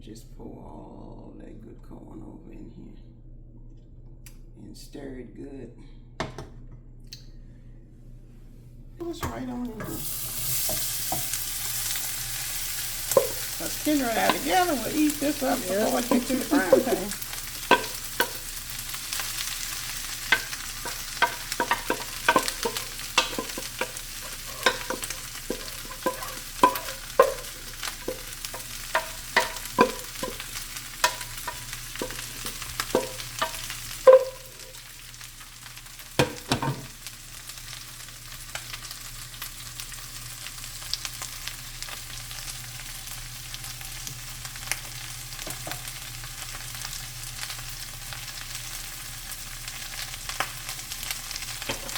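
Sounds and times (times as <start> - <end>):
spoon knocking and scraping a pan: 9.2 - 34.9, 36.2 - 37.0, 45.4 - 46.0, 51.4 - 51.9
corn sizzling in a frying pan: 9.7 - 51.9.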